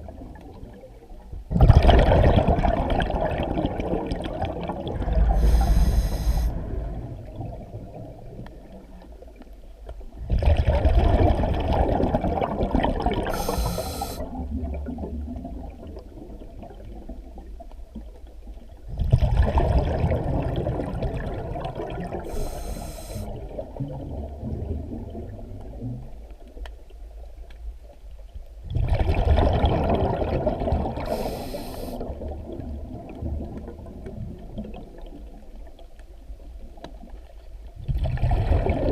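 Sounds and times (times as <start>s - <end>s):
bubbling exhale underwater: 1.5s - 8.7s, 10.2s - 16.9s, 19.0s - 25.8s, 28.7s - 35.1s, 37.9s - 38.9s
hissing regulator inhale: 5.4s - 6.7s, 13.3s - 14.3s, 22.3s - 23.3s, 31.1s - 32.0s.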